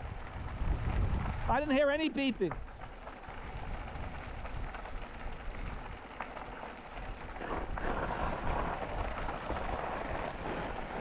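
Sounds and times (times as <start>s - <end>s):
wind buffeting microphone: 0.0s - 6.0s
bike tyre noise: 0.0s - 11.0s.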